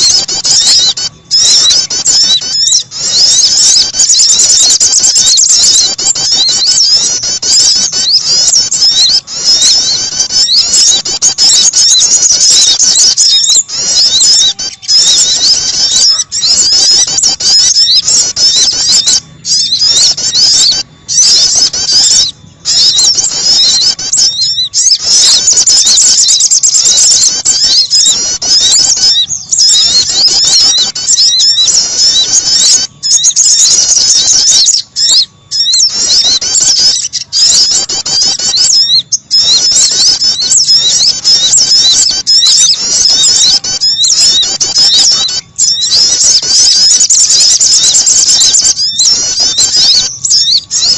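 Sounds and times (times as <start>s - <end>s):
songbirds chirping: 0.0s - 50.9s.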